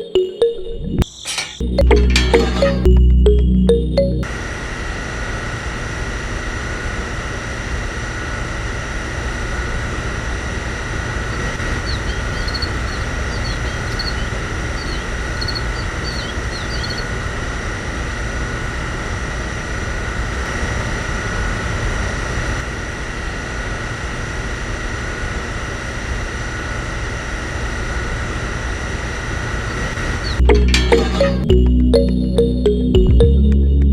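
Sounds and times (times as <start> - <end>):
small electric motor whining: 4.4 - 20.5.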